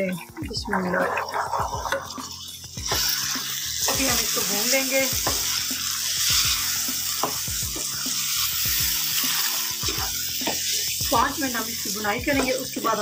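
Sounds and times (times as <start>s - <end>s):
wooden spoon stirring and scraping: 0.0s - 5.4s
chickpeas sizzling in a wok: 0.0s - 13.0s.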